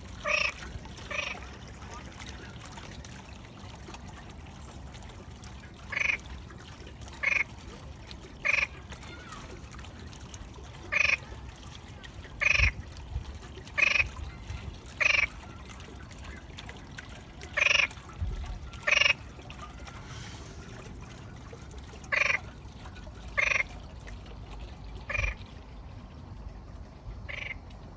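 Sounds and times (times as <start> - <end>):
frog croaking: 0.2 - 1.4, 18.9 - 19.2, 27.3 - 27.6.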